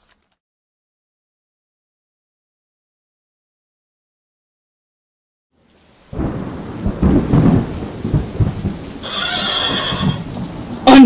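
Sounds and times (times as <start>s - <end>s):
steady rain: 5.5s - 11.0s
rolling thunder: 6.1s - 11.0s
horse whinny: 9.0s - 10.3s.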